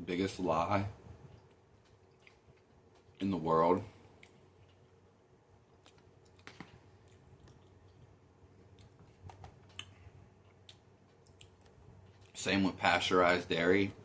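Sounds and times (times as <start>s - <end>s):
person chewing food: 1.3s - 3.2s, 4.0s - 5.0s, 5.6s - 12.4s.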